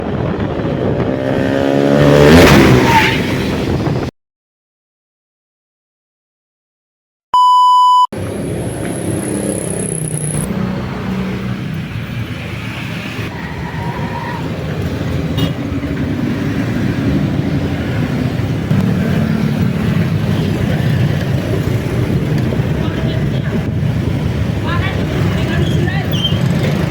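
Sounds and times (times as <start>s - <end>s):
road noise: 0.0s - 4.1s, 8.1s - 26.9s
loud electronic beep: 7.4s - 8.1s, 9.0s - 10.5s
motorcycle engine: 8.2s - 11.7s, 14.8s - 25.6s.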